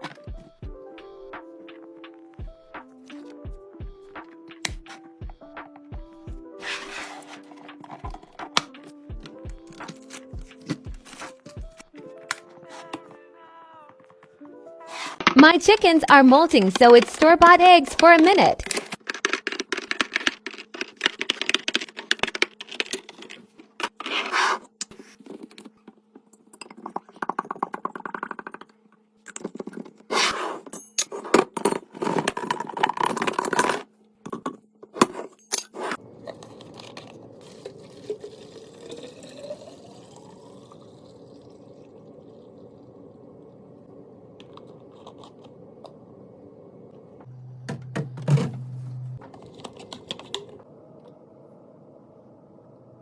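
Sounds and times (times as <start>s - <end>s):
food packaging clicks and rustles: 9.6s - 13.0s, 18.2s - 28.5s, 49.2s - 50.6s
fridge low hum: 29.1s - 53.0s.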